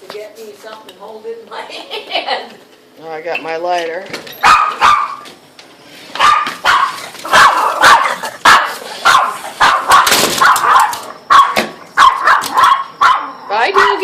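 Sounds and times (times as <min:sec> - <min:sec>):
dog barking rapidly: 0:04.4 - 0:05.3, 0:06.2 - 0:14.0.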